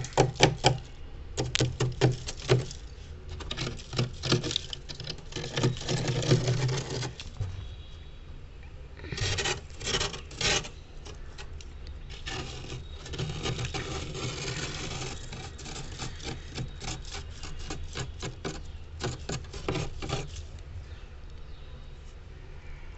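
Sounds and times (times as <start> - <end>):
metal spoon scraping frost: 0.0 - 7.4, 9.1 - 20.6.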